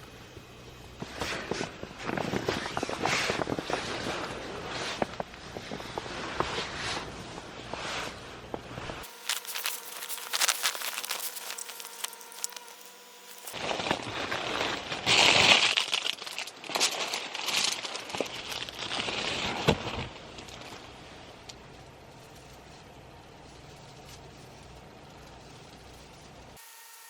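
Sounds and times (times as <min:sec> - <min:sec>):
crinkling and rustling handling noise: 0:09.0 - 0:26.6.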